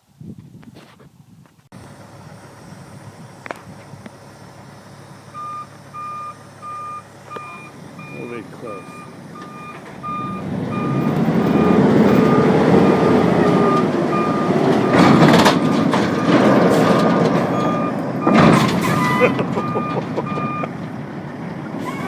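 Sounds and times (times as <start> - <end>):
vehicle engine running: 1.7 - 22.0
reverse alarm beeping: 5.3 - 16.4, 17.5 - 20.7.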